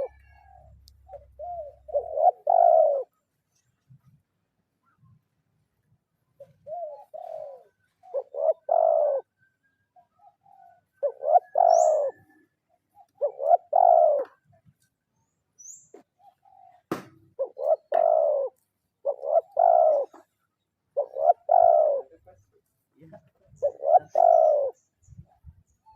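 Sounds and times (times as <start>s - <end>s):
dove cooing: 0.0s - 3.2s, 6.4s - 9.4s, 10.0s - 14.5s, 16.2s - 22.4s, 23.4s - 25.6s
faint high chirp: 9.3s - 13.2s.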